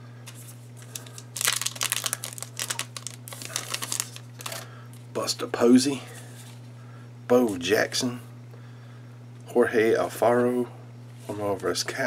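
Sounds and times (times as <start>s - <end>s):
low electrical hum: 0.0s - 12.0s
wrapper being torn and crinkled: 0.8s - 4.6s.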